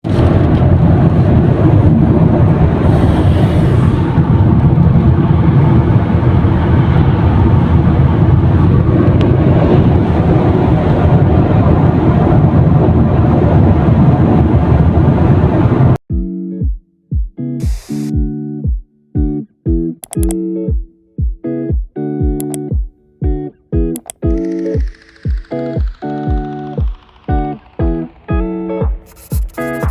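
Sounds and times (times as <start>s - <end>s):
loud low rumbling: 0.1s - 16.0s
plucked guitar music: 16.1s - 29.9s.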